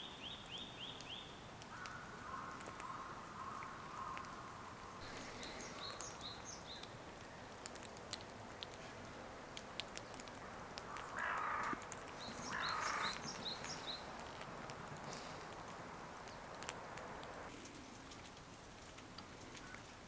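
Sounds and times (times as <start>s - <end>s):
crow-like caws: 1.7s - 4.4s, 10.9s - 11.8s, 12.4s - 13.3s.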